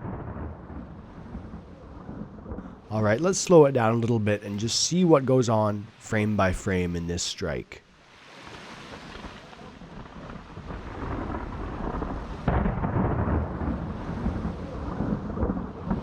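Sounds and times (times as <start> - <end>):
rolling thunder: 0.0 - 4.8, 8.8 - 16.0
rain hissing: 0.1 - 16.0.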